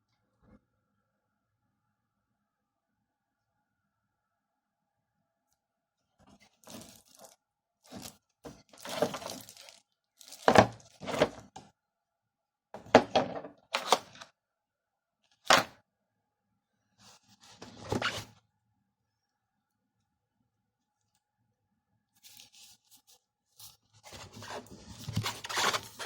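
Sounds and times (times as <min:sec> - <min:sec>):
packaging knocks and rustles: 0:06.6 - 0:11.6, 0:24.1 - 0:26.0.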